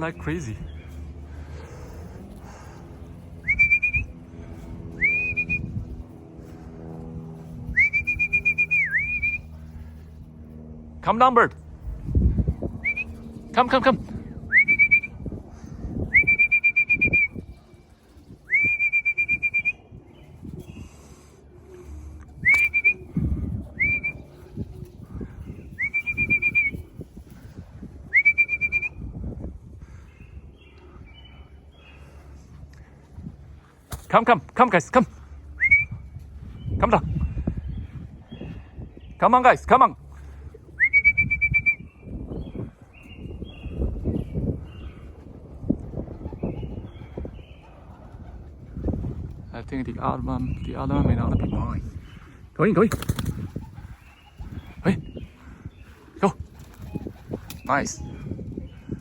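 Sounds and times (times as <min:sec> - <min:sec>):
low rumbling noise: 0:00.0 - 0:59.0
man whistling: 0:03.4 - 0:04.1, 0:05.0 - 0:05.7, 0:07.8 - 0:09.4, 0:14.5 - 0:15.2, 0:16.1 - 0:17.4, 0:18.5 - 0:19.8, 0:22.4 - 0:23.1, 0:23.8 - 0:24.2, 0:25.8 - 0:26.8, 0:28.1 - 0:29.0, 0:35.6 - 0:36.0, 0:40.8 - 0:41.9.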